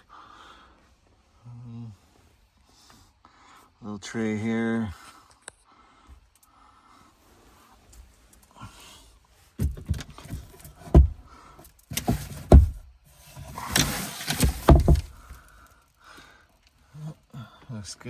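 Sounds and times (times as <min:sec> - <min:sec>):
cabinet doors knocking and thumping: 0:09.6 - 0:11.2, 0:11.9 - 0:15.4
scraping rattle: 0:09.6 - 0:15.6.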